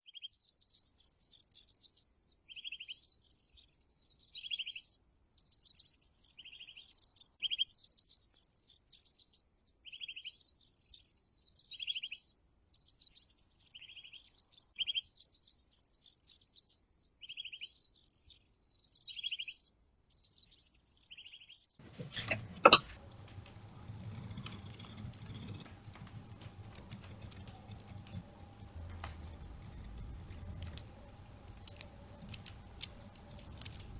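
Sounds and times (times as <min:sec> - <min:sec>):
faint clinking: 0:21.8 - 0:33.9
steady low hum: 0:21.8 - 0:33.9.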